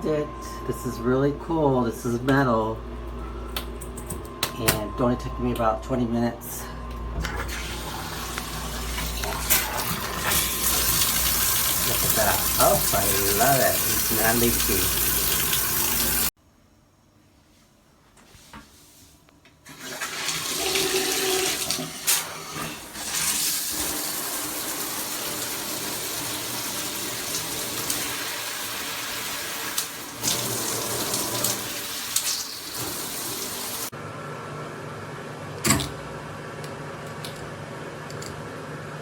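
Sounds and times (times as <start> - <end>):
shower head spraying water: 10.2 - 16.3, 23.3 - 33.9.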